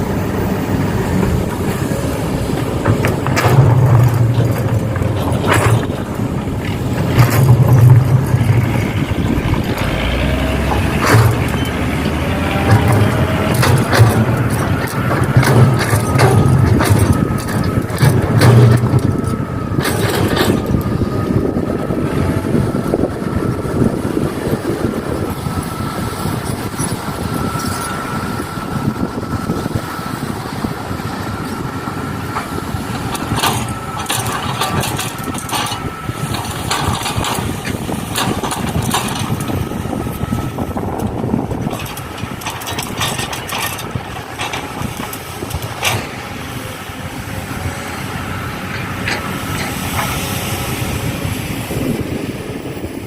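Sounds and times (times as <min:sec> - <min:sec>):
excavator running: 0:00.0 - 0:53.0
thin mechanical whine: 0:00.0 - 0:53.0
knocks and clanks: 0:01.1 - 0:21.6, 0:31.4 - 0:46.4.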